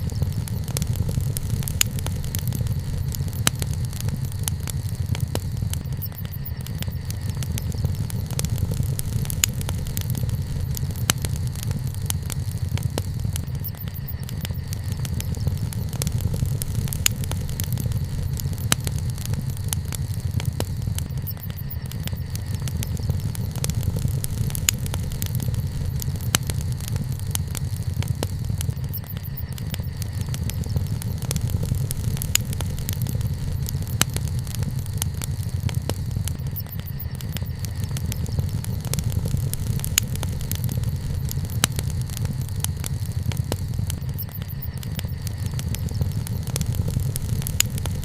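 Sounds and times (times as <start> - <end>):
low rumble: 0.0 - 21.2, 21.8 - 36.5
wood bonfire crackling: 0.0 - 48.0.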